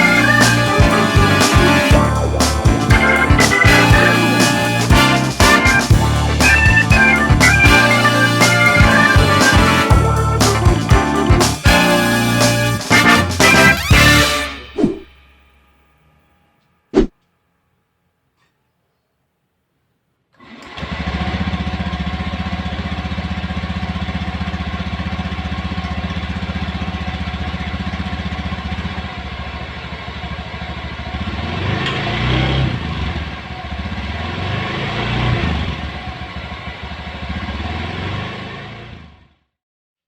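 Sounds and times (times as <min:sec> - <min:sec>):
scooter engine idling and revving: 0:00.0 - 0:12.7, 0:20.5 - 0:39.5.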